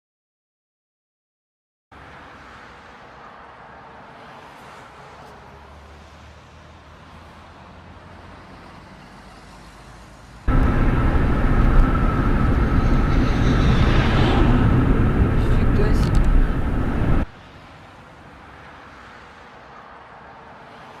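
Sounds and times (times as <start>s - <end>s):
vehicle road noise: 1.9s - 21.0s
faint high whine: 10.5s - 17.3s.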